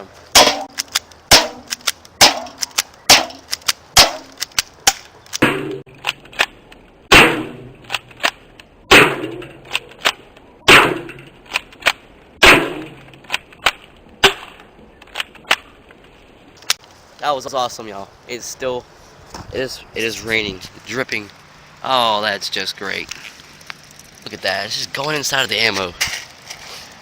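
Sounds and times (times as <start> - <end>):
airsoft pistol firing: 0.4 - 5.8, 12.4 - 13.0
small clicks and knocks: 0.7 - 6.8.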